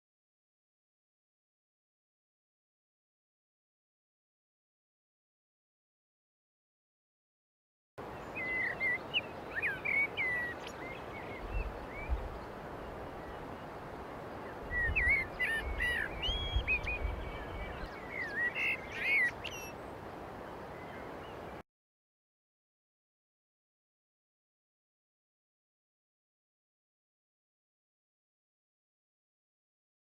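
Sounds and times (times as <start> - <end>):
steady background hiss: 8.0 - 21.6
songbird warbling: 8.2 - 13.7, 14.4 - 19.9.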